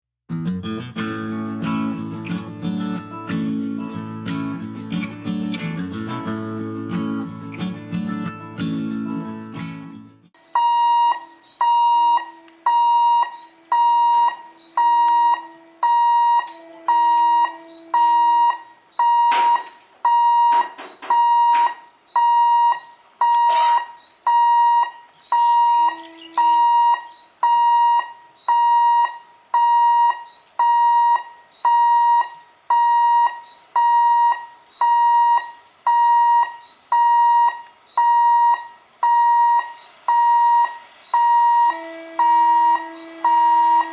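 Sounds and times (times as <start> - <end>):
low honking tones: 10.6 - 19.6, 25.2 - 27.1, 41.1 - 43.9
level crossing bell ringing: 41.2 - 43.9.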